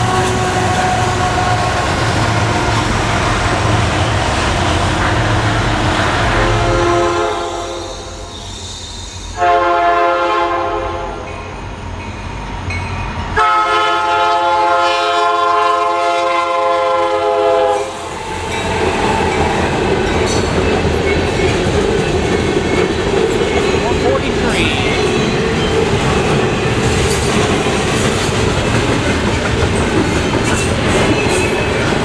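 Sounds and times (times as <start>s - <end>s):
train horn blasts: 0.0s - 4.1s, 4.7s - 8.3s, 9.3s - 11.3s, 13.4s - 18.0s
train wheels on rails: 0.0s - 14.5s, 15.2s - 32.0s.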